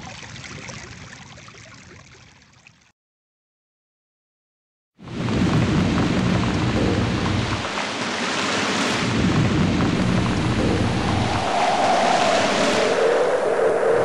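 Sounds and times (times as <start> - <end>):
steady rain: 5.0 - 13.5
low rolling thunder: 5.1 - 7.7, 9.0 - 14.0.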